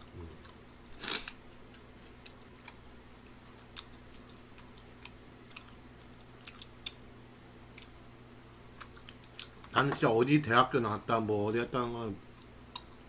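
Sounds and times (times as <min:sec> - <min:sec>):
chewing and mouth clicks: 0:00.0 - 0:07.0, 0:07.7 - 0:09.8, 0:12.3 - 0:13.0
steady low hum: 0:00.0 - 0:13.0.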